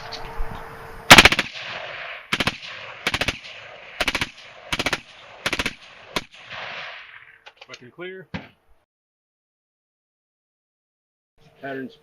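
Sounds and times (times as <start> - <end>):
suppressed rifle firing bursts: 1.1 - 7.3.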